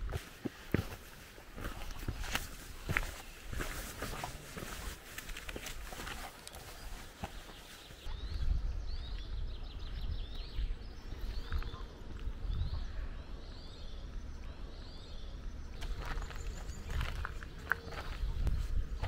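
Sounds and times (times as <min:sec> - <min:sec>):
bird singing falling chirps: 0:06.5 - 0:19.0.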